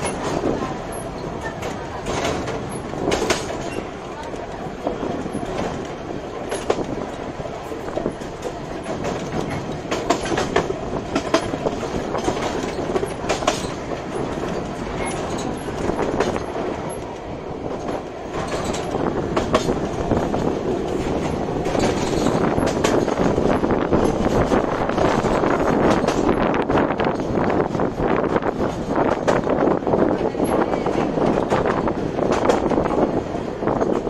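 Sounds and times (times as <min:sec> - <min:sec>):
train wheels rumbling on rail: 0:00.0 - 0:34.0
sharp clicks and clacks: 0:01.5 - 0:07.0, 0:07.9 - 0:17.2, 0:17.8 - 0:27.8, 0:28.6 - 0:29.5.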